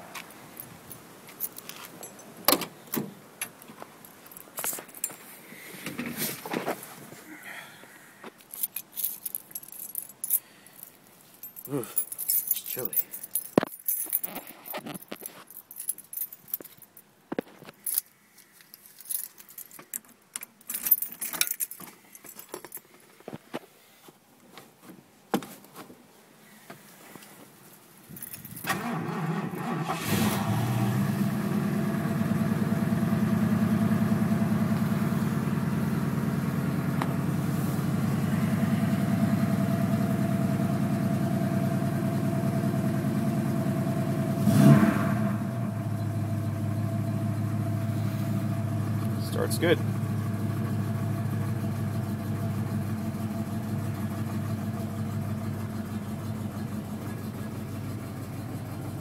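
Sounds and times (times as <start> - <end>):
car engine cranking and starting: 28.4 - 59.0
car engine idling: 28.8 - 59.0.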